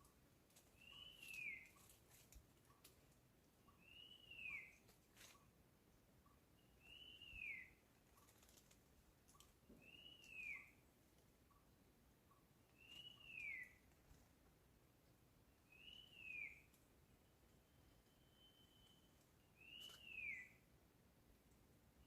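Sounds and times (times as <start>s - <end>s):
bird whistling: 0.8s - 1.7s, 3.8s - 4.7s, 6.8s - 7.7s, 9.8s - 10.7s, 12.8s - 13.8s, 15.7s - 16.7s, 17.7s - 20.6s.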